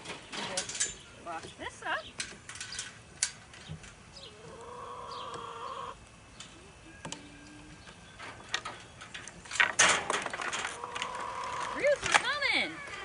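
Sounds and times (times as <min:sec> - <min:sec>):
chicken calling: 0:04.1 - 0:07.9, 0:10.7 - 0:13.0.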